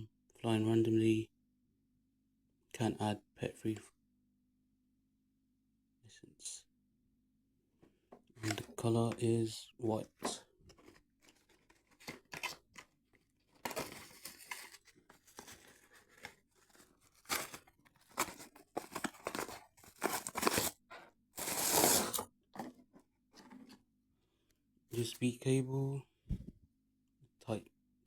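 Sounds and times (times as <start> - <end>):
packaging tearing and crinkling: 13.5 - 20.8, 21.4 - 22.2.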